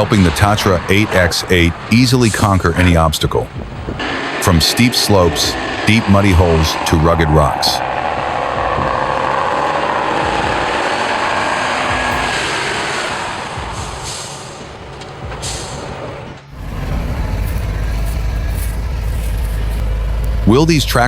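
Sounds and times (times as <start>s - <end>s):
truck engine running: 0.0s - 21.0s
loud rushing hissing noise: 0.9s - 16.2s.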